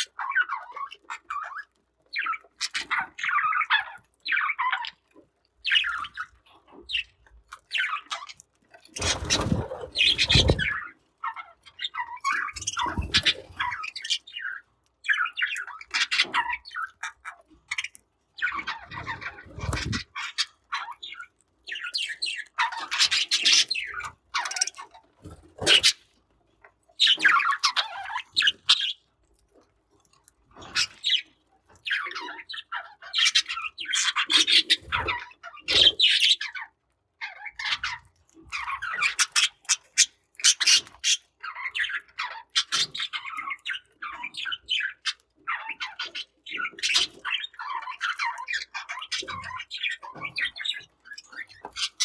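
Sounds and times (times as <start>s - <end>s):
budgerigars chirping: 9.0s - 17.0s, 18.4s - 24.7s, 31.9s - 36.5s, 38.6s - 52.0s.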